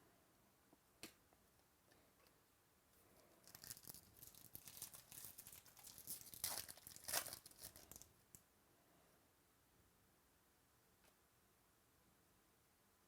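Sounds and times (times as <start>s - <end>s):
foil pack tearing and crinkling: 3.5s - 8.1s.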